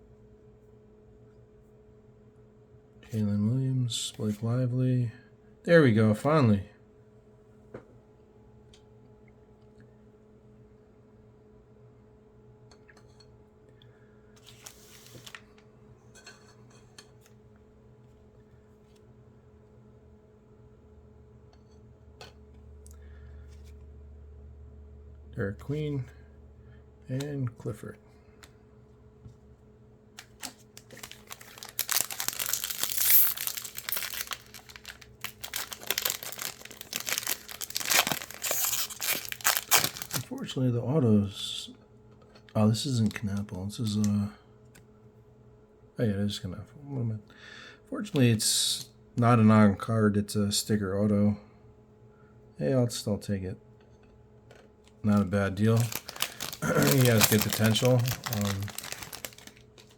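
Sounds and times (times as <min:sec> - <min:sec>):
plastic packaging crinkling and tearing: 0:14.4 - 0:15.4, 0:30.2 - 0:40.4, 0:55.1 - 0:59.9
cards rustling against each other: 0:14.4 - 0:15.6, 0:30.2 - 0:40.3, 0:55.1 - 0:59.9.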